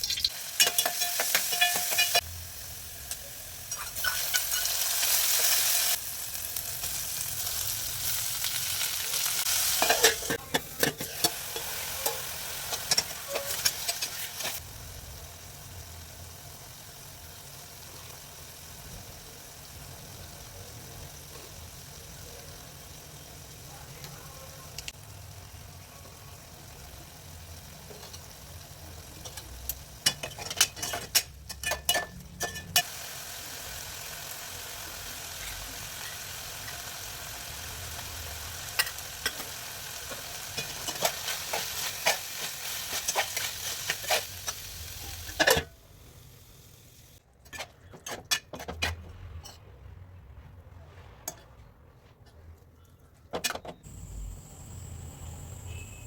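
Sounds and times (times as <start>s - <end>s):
curry sizzling in a hot pan: 0.0s - 47.2s
spatula clicking and scraping pan: 0.1s - 2.2s, 9.6s - 14.6s, 27.8s - 28.4s, 29.1s - 32.9s, 38.0s - 45.7s, 47.4s - 49.6s.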